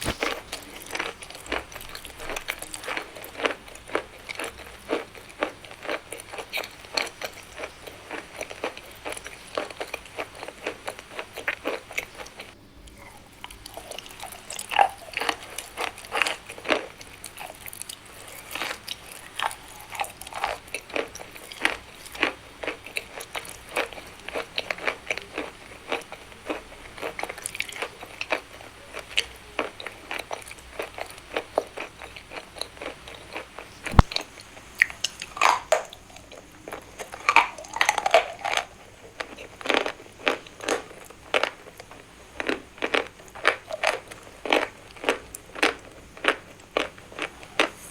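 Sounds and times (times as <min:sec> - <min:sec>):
person chewing chalk crunches: 0:00.0 - 0:04.5, 0:30.9 - 0:47.9.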